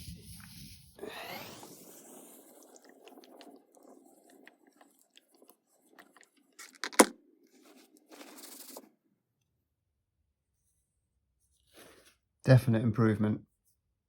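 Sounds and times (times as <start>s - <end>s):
cloth rustling: 6.8s - 8.9s.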